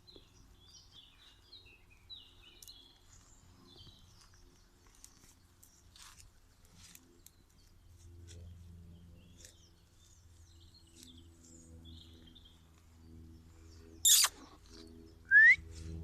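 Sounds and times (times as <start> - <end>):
low steady hum: 0.0 - 16.0
faint bird chirps: 13.8 - 15.7.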